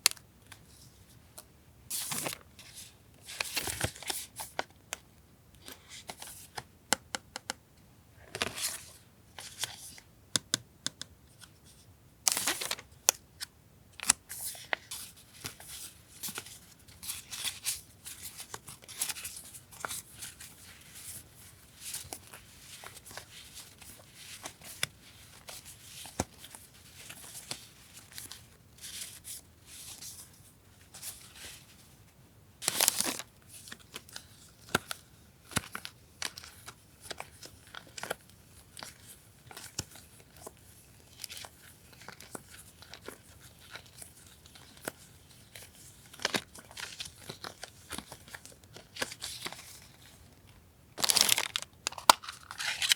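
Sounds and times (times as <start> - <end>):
paper rustling and crinkling: 51.0 - 52.9
paper tearing: 51.0 - 52.9.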